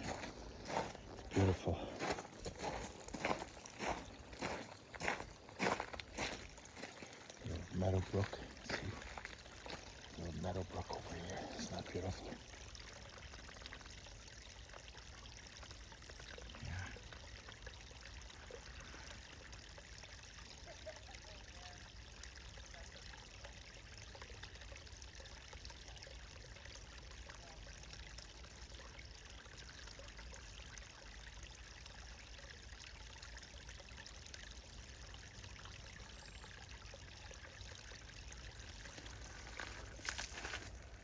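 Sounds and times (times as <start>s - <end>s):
footsteps: 0.0s - 9.9s, 39.2s - 41.0s
brook trickling: 0.0s - 41.0s.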